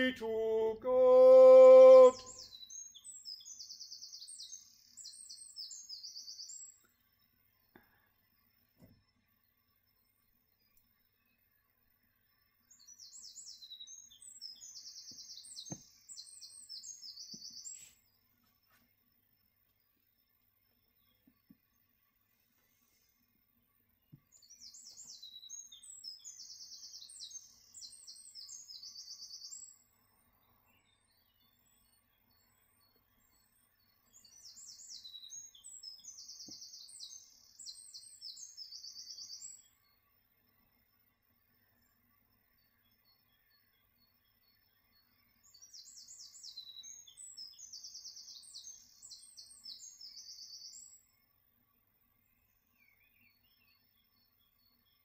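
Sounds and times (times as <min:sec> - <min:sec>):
distant bird calls: 0:00.0 - 0:06.9
songbird singing trills: 0:00.0 - 0:55.0.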